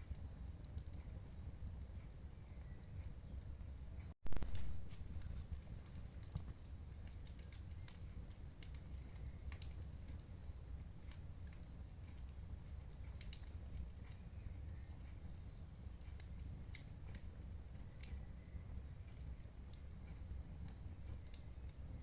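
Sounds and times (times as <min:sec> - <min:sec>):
wood fire snaps and pops: 0:00.0 - 0:22.0
faint low rumble: 0:01.2 - 0:11.2.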